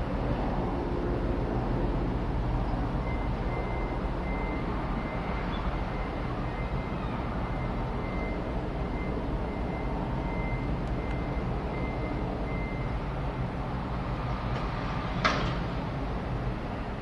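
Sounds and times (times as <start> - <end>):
aircraft rumbling overhead: 0.0 - 3.0.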